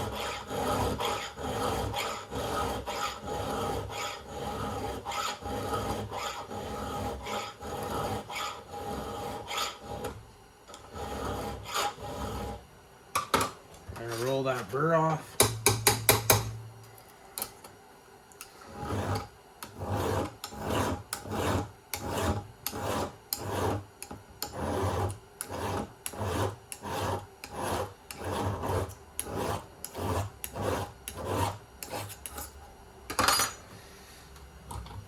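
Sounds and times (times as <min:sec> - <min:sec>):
file scraping chainsaw chain: 0:00.0 - 0:10.1.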